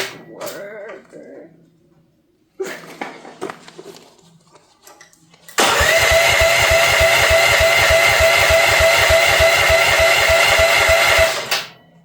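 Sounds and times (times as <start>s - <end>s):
engine starter cranking: 5.6s - 11.8s.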